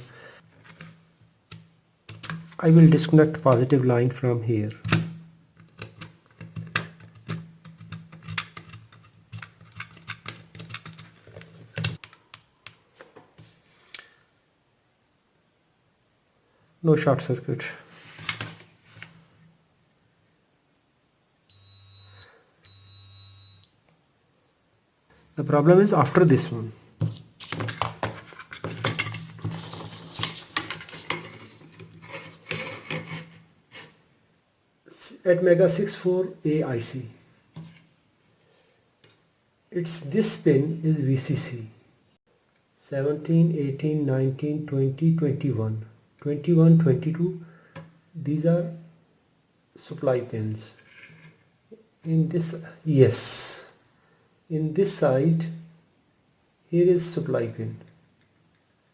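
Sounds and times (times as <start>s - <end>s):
hand tools clicking and tapping: 5.6s - 12.2s.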